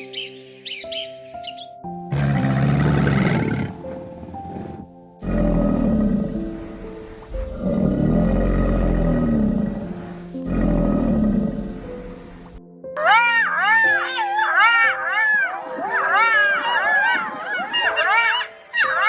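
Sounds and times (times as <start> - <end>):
background music: 0.0 - 19.0
tiger roaring: 2.1 - 6.8, 7.4 - 11.9.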